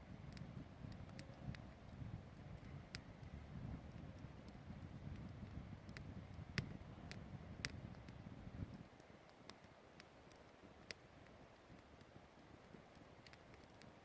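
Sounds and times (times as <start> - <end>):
campfire crackling: 0.0 - 14.0
sharp fire pops: 0.3 - 8.9.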